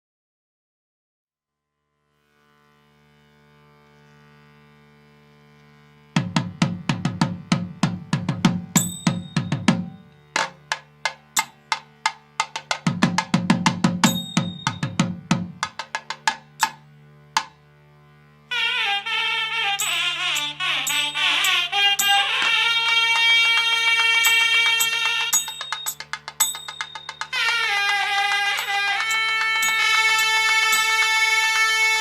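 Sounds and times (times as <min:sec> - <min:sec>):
pitched drum strokes: 0:06.2 - 0:16.8, 0:19.8 - 0:31.5
high metallic ring: 0:08.7 - 0:10.3, 0:14.0 - 0:15.0, 0:19.8 - 0:22.5, 0:24.2 - 0:27.5, 0:28.6 - 0:31.0.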